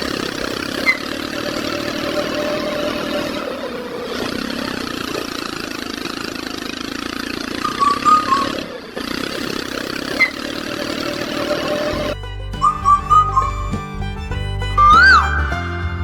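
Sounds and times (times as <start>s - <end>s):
small motor running: 0.0s - 15.7s
background music with whistling: 12.1s - 16.0s.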